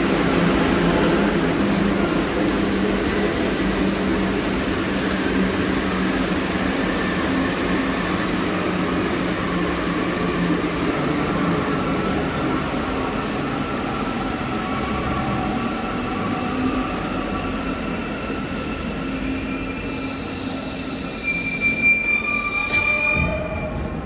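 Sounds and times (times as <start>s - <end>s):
train running hum: 0.0s - 21.4s
high-pitched wheel squeal: 20.8s - 23.8s.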